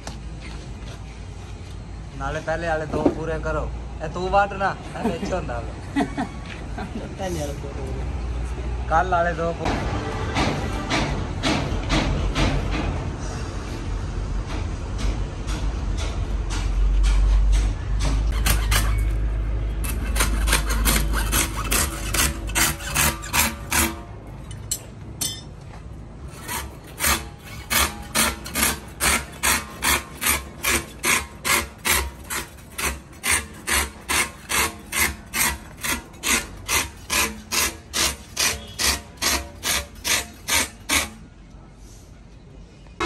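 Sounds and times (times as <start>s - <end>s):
hand tool scraping rubber: 18.3s - 24.1s, 26.3s - 41.3s.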